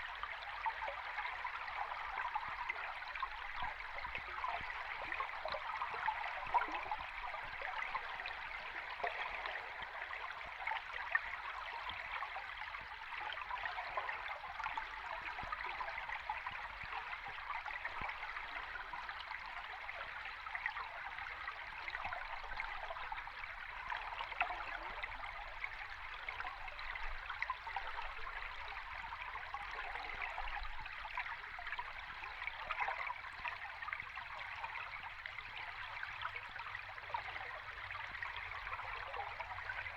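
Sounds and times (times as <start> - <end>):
underwater rushing stream: 1.0 - 12.1.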